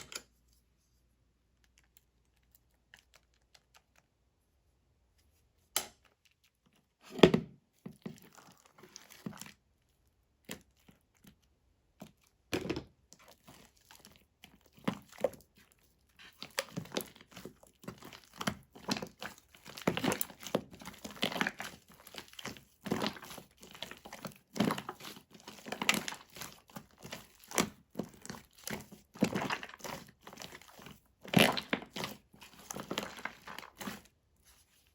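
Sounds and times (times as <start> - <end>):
foam slime crackling and squishing: 7.6 - 34.9.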